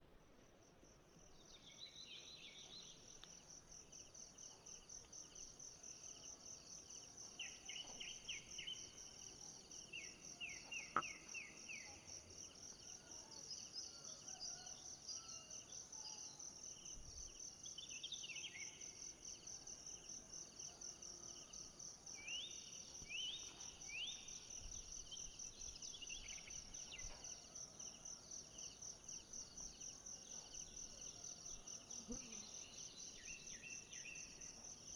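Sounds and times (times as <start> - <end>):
insects trilling: 22.1 - 34.9.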